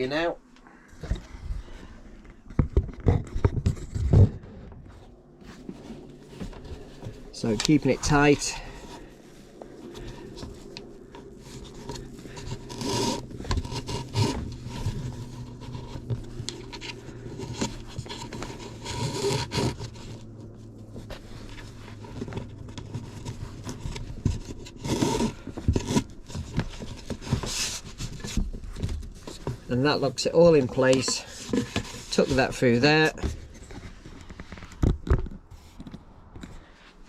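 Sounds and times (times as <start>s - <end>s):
string scraping against wood: 1.0s - 35.8s.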